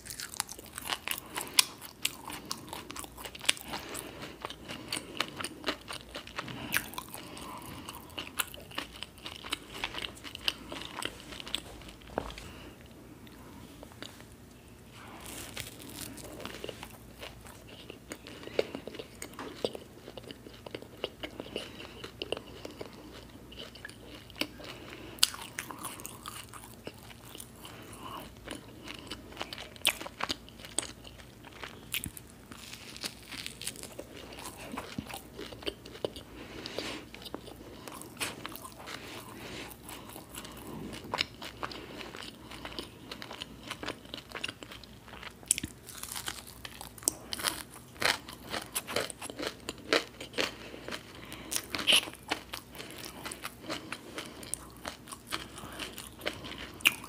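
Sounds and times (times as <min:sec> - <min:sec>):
person chewing crisp food: 0:00.0 - 0:57.0.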